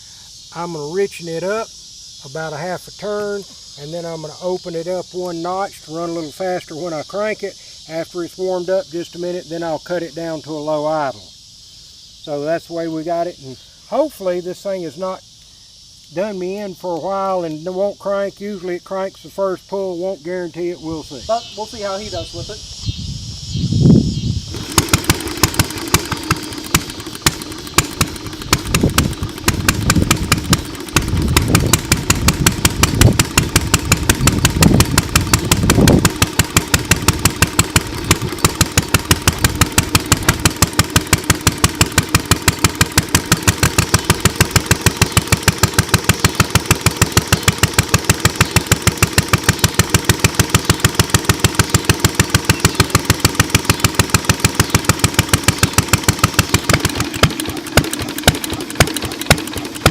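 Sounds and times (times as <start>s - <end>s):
engine running: 24.4s - 59.9s.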